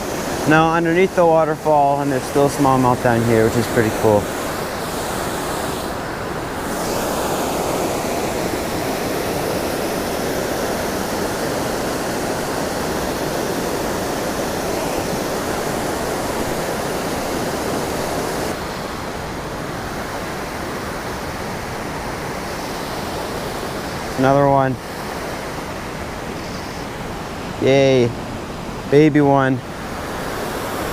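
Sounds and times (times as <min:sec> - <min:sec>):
waterfall rushing: 0:00.0 - 0:30.9.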